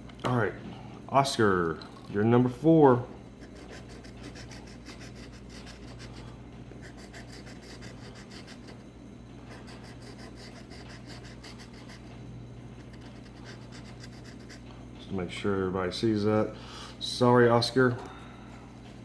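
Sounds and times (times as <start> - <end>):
steady low hum: 0.0 - 19.0
lottery ticket being scratched: 3.4 - 8.8, 9.5 - 14.7.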